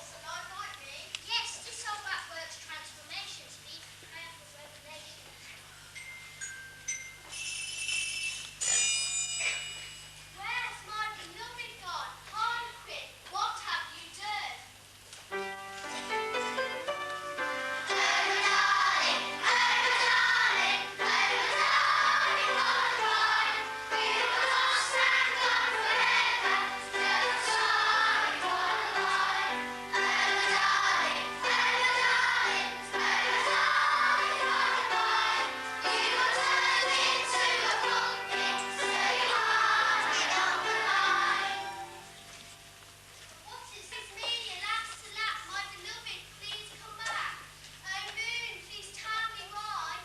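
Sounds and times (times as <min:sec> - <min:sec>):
musical accompaniment: 0:15.3 - 0:42.8
children singing together: 0:17.8 - 0:42.2.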